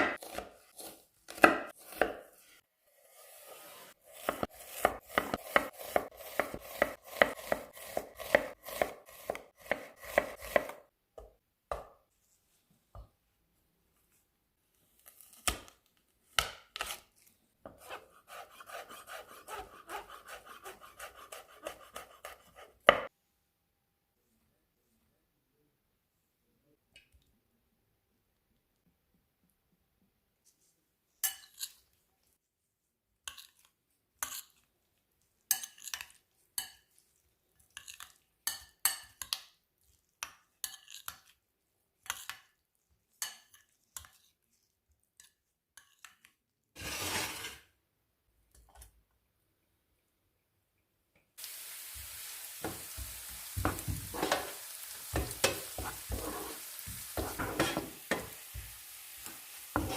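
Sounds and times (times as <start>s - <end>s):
scraping stirring strokes: 2.3s - 9.4s, 17.7s - 22.8s, 52.6s - 58.7s
food sizzling in a pan: 51.4s - 59.9s.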